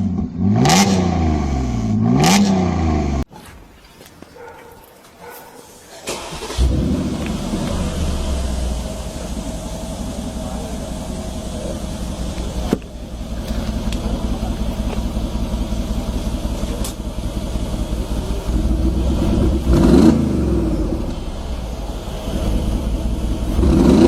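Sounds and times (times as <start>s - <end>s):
engine revving: 0.0s - 3.2s, 6.0s - 24.0s
car exhaust idling: 5.3s - 24.0s.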